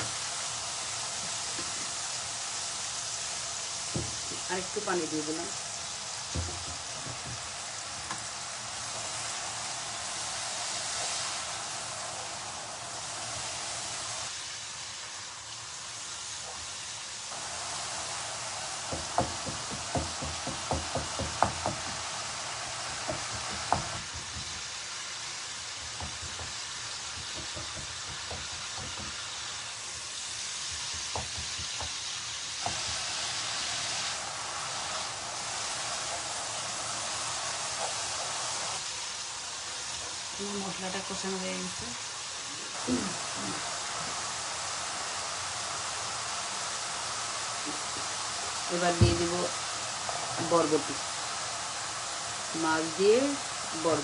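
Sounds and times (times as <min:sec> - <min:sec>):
sauce sizzling in a pan: 0:00.0 - 0:54.0
spatula knocking against pan: 0:19.0 - 0:22.0, 0:25.8 - 0:29.2, 0:30.7 - 0:32.0.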